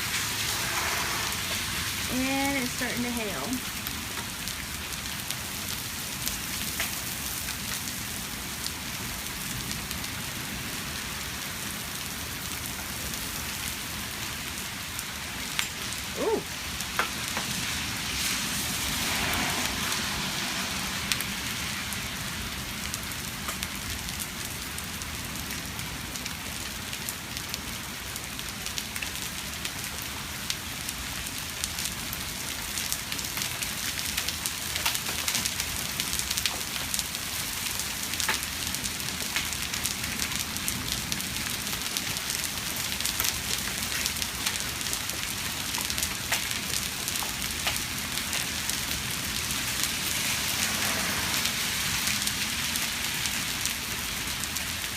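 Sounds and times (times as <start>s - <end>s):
rain hissing: 0.0s - 54.9s
hailstones clicking on hard surfaces: 32.6s - 49.9s.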